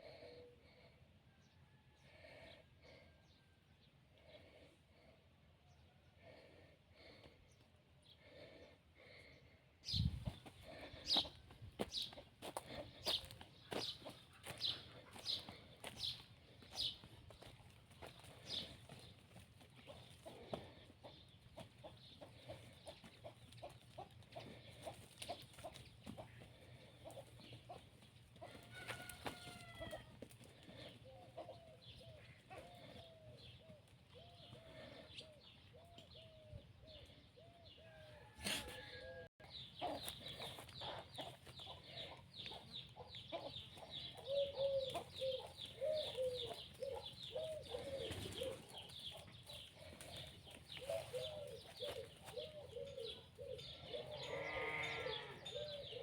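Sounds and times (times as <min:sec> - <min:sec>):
chickens clucking: 0:09.9 - 0:36.3, 0:38.2 - 0:54.2.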